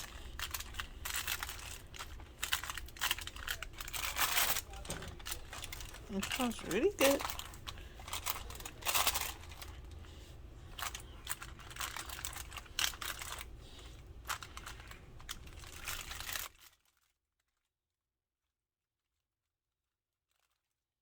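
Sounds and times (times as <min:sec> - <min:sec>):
steady low hum: 0:00.0 - 0:16.5.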